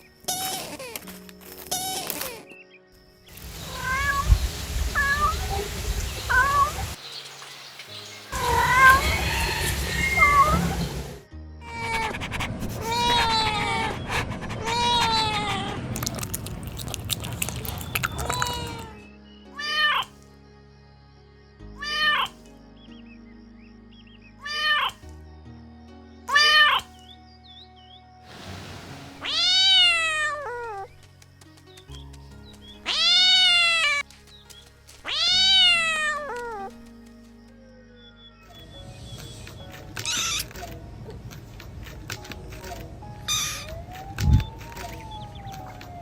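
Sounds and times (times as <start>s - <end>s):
soft background music: 0.0s - 46.0s
kitten meowing: 3.6s - 6.9s, 8.4s - 10.9s, 14.6s - 18.9s, 26.3s - 26.9s, 40.0s - 40.6s.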